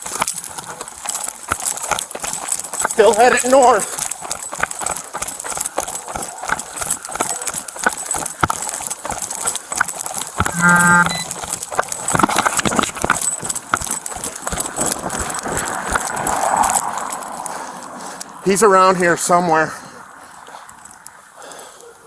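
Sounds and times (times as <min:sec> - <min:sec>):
gear knocking against camera: 0:00.0 - 0:17.4
rapid footsteps: 0:00.0 - 0:21.6.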